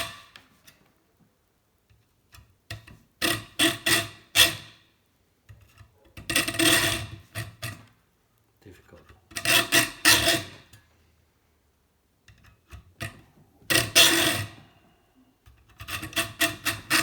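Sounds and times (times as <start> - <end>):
hand saw rasping through metal: 15.8 - 17.0.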